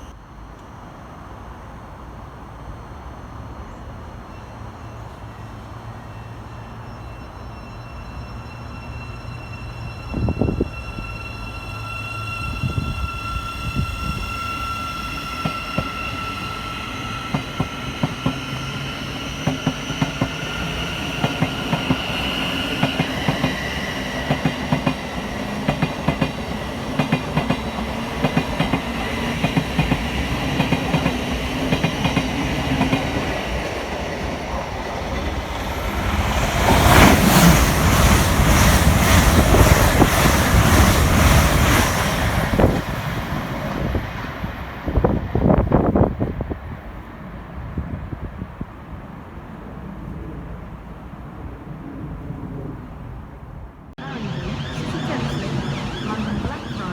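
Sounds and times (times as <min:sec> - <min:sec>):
high steady whine: 0:54.0 - 0:56.9.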